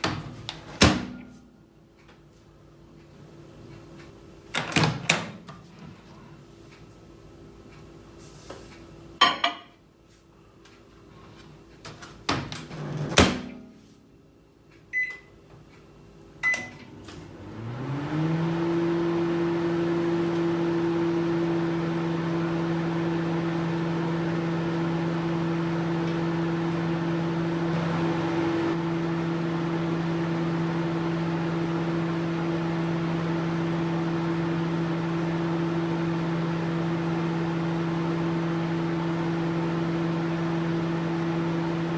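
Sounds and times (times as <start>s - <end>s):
microwave oven humming: 10.4s - 41.9s.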